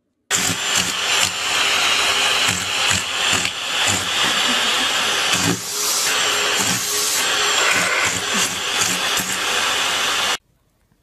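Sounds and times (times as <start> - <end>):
appliance rushing air hiss: 0.3 - 10.4.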